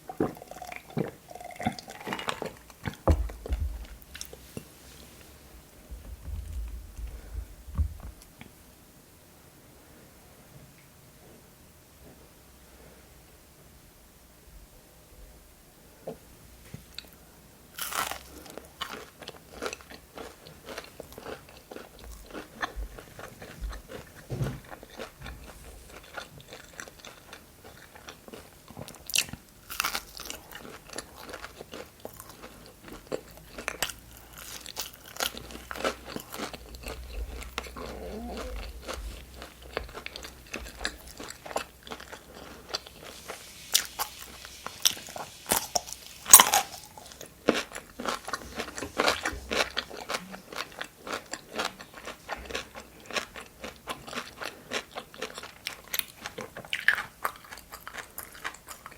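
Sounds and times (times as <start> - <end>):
crunchy bites and wet chewing: 0.0 - 4.7, 17.8 - 58.9.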